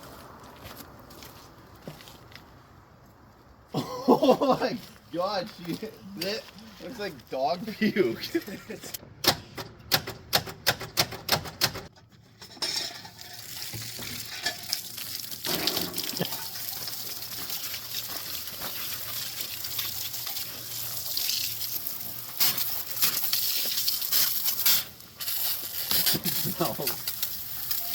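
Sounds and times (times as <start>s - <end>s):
frothy fluid fizzing: 13.3s - 27.9s.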